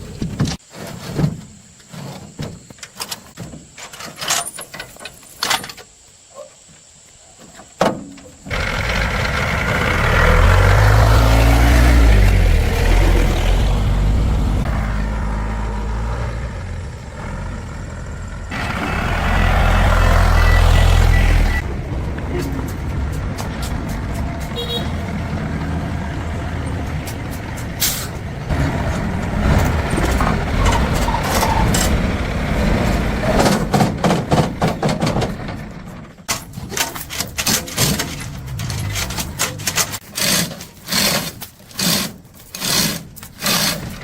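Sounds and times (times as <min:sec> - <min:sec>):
large engine running: 0:08.5 - 0:34.8.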